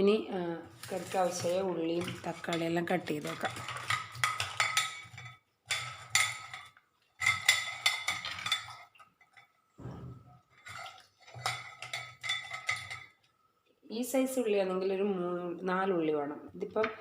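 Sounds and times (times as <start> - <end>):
metal spoon scraping metal vessel: 0.7 - 9.5, 10.4 - 13.2.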